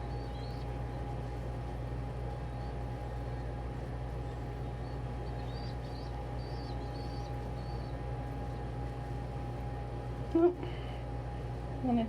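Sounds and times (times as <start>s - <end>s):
young pigeon peeping: 0.0s - 1.4s, 2.2s - 9.6s
steady low hum: 0.0s - 12.0s.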